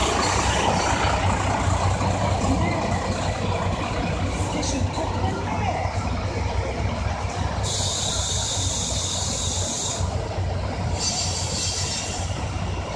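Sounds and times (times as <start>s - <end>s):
diesel railcar idling: 0.0s - 12.9s.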